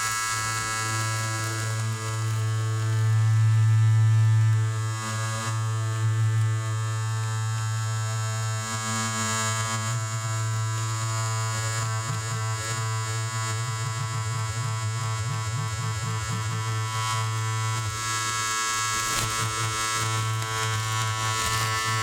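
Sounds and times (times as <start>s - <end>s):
electric shaver buzzing: 16.1s - 22.0s.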